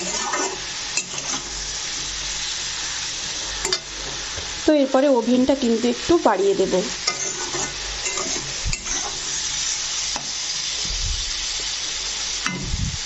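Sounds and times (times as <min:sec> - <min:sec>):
metal spatula scraping pan: 0:00.0 - 0:01.6, 0:07.0 - 0:10.3
vegetables sizzling in oil: 0:00.0 - 0:13.0.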